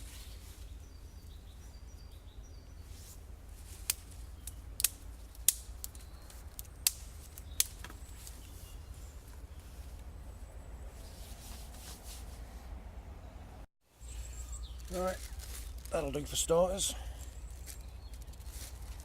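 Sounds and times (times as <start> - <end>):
sticks snapping: 3.8 - 8.5
faint bird chirps: 14.0 - 15.9.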